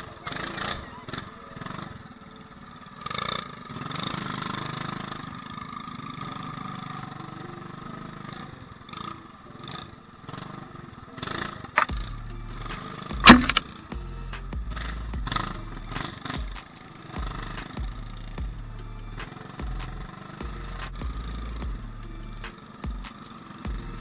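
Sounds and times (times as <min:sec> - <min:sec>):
small motorbike engine running: 0:00.0 - 0:24.0
low rumbling: 0:11.9 - 0:16.0
sharp click: 0:12.7 - 0:13.6.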